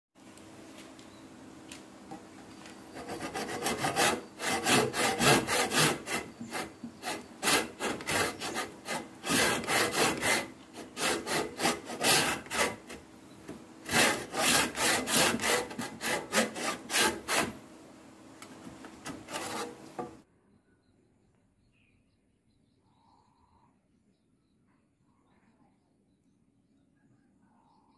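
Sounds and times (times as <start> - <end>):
hand saw cutting wood: 3.0 - 13.0, 13.8 - 17.6, 18.5 - 20.2.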